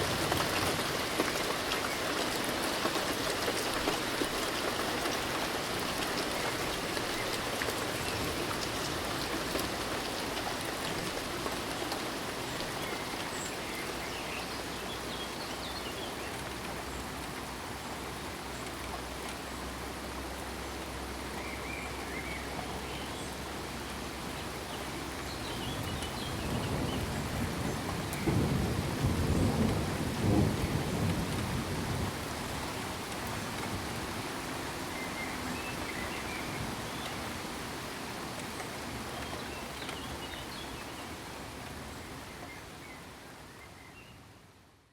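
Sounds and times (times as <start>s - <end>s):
steady rain: 0.0s - 44.9s
low roll of thunder: 25.9s - 32.6s.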